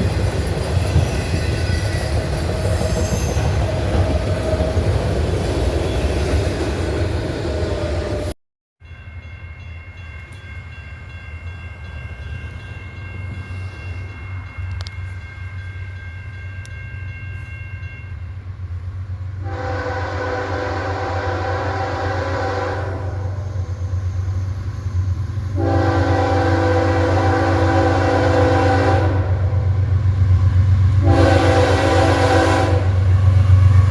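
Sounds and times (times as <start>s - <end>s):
diesel locomotive rumbling: 0.0s - 8.4s, 10.0s - 33.9s
train passing: 0.0s - 33.9s
multi-note air horn blasts: 19.4s - 23.4s, 25.6s - 29.7s, 31.0s - 33.0s.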